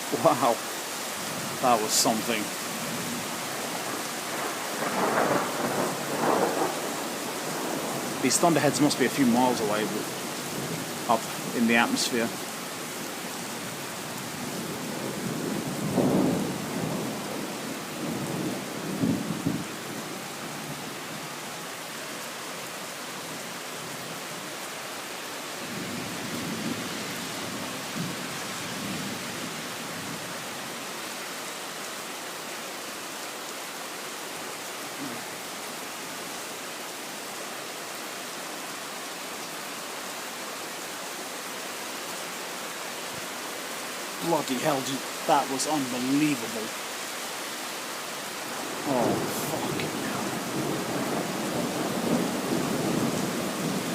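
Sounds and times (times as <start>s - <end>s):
heavy rain pouring: 0.0s - 53.9s
thunder rumbling: 3.8s - 8.8s, 48.6s - 53.9s.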